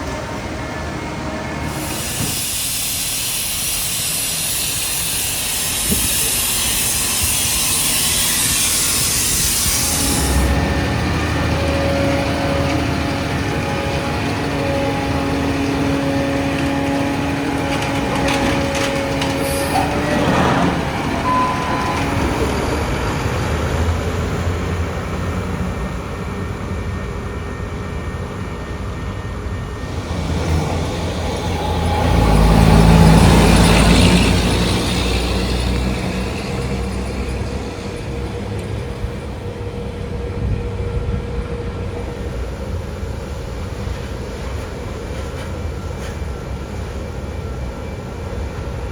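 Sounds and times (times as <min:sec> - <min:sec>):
diesel truck engines running: 0:09.1 - 0:25.5, 0:29.9 - 0:39.8.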